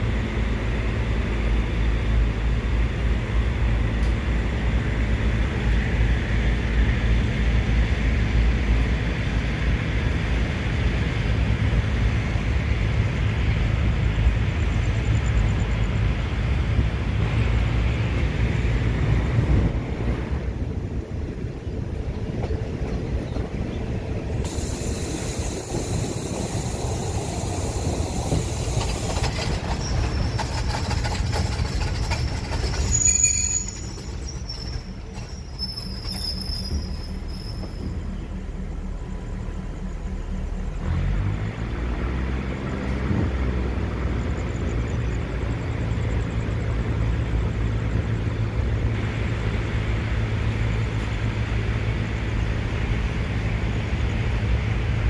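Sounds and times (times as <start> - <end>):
train wheels rumbling on track: 0.0 - 55.0
high-pitched wheel squeal: 24.5 - 38.2
low droning hum: 36.6 - 55.0.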